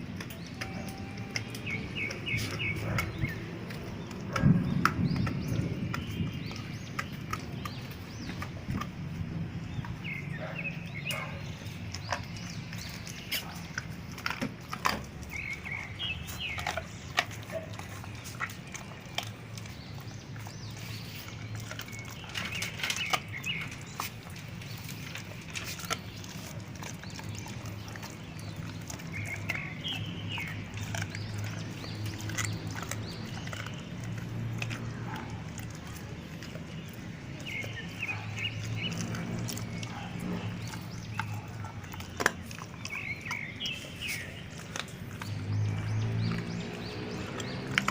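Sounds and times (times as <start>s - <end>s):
dogs crunching bones: 0.0s - 47.9s.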